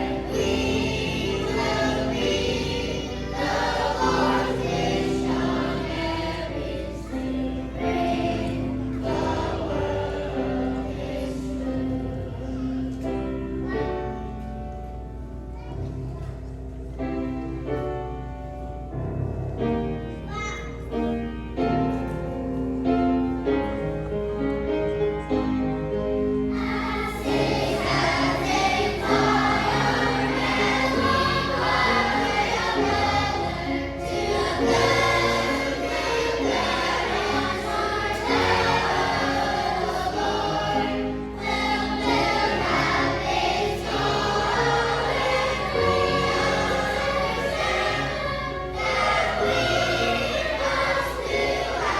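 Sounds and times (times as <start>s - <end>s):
children's choir singing: 0.0s - 19.0s, 24.4s - 51.9s
instrumental accompaniment: 13.1s - 51.9s.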